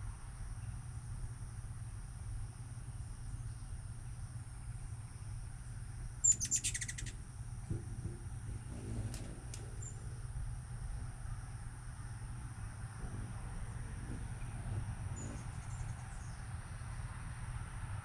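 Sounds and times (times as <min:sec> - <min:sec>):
low background rumble: 0:00.0 - 0:18.0
hummingbird chattering call: 0:06.2 - 0:07.3, 0:08.6 - 0:10.3, 0:13.9 - 0:17.0.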